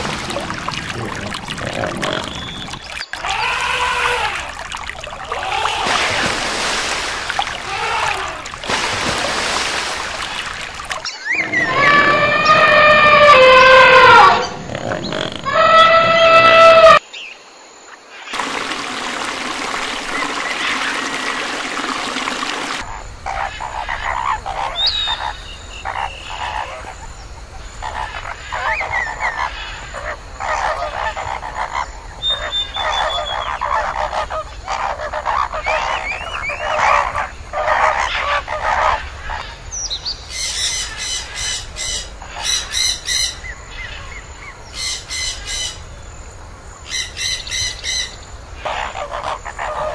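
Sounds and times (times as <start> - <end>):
flamingos honking: 10.2 - 17.0
elephant trumpeting: 11.3 - 17.0.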